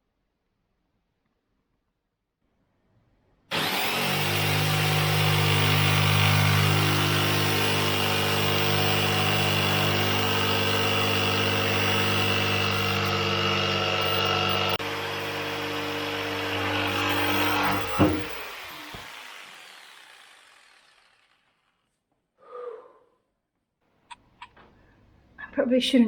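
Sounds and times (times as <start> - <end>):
electric saw cutting wood: 3.5 - 21.8.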